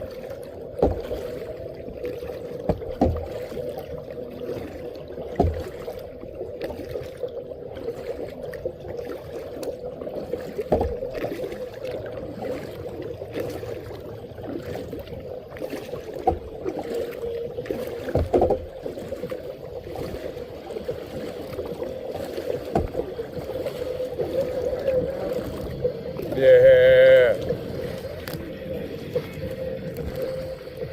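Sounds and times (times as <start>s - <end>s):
paddle strokes in water: 0.0s - 30.9s
water sloshing: 0.0s - 30.9s
knocks against boat: 0.8s - 1.2s, 2.6s - 3.4s, 5.3s - 5.9s, 10.6s - 11.1s, 16.2s - 16.5s, 18.0s - 18.7s, 22.7s - 23.1s.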